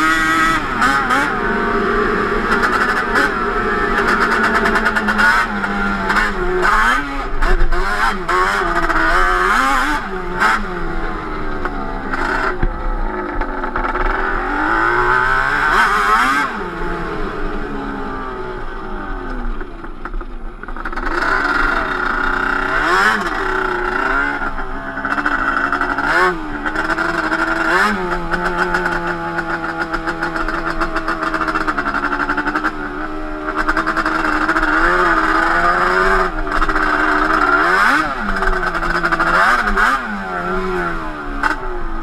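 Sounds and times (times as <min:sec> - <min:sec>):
two-stroke atv engine revving: 0:00.0 - 0:42.0.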